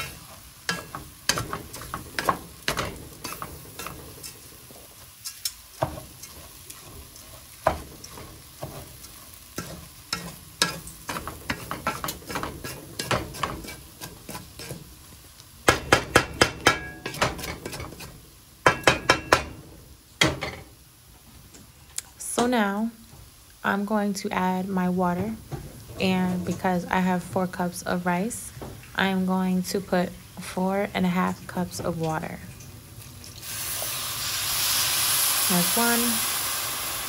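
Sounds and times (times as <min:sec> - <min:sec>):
food sizzling: 0:00.0 - 0:37.0
spatula scraping a pot: 0:05.2 - 0:14.9, 0:17.0 - 0:18.2.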